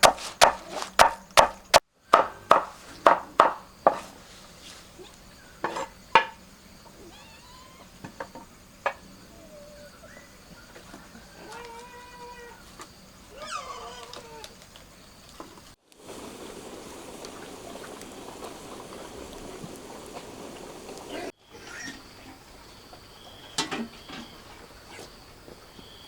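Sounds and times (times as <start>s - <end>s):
chopping strokes: 0.0s - 4.1s
pitched animal calls: 13.3s - 14.6s.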